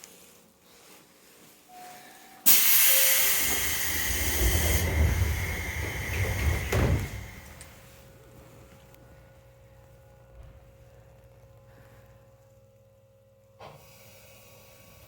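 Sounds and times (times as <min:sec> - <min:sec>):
compressed air hissing from train: 0:02.4 - 0:07.8
thud: 0:04.2 - 0:07.6.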